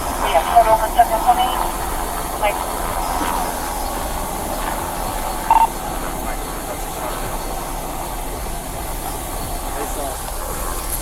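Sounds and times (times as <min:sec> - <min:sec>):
outdoor hissing rush: 0:00.0 - 0:11.0
short electronic beep: 0:05.5 - 0:05.7.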